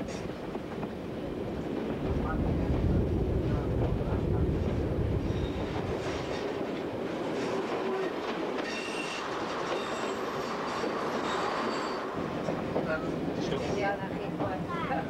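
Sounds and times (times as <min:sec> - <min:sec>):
diesel train rumble: 0:00.0 - 0:15.0
faint high wheel squeals: 0:08.6 - 0:12.1.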